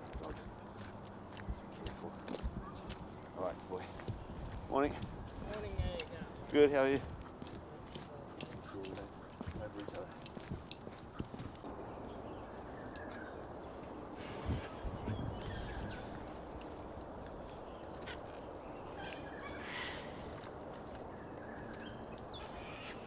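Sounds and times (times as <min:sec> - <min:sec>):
short bird calls: 0:11.7 - 0:23.0
steady background hiss: 0:11.7 - 0:23.0.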